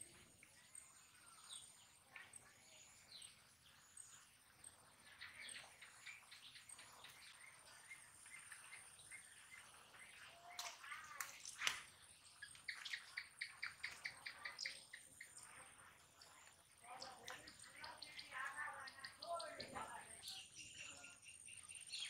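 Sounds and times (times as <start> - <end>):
faint bird chirping: 0.0 - 22.0
sharp clicks: 10.6 - 11.9.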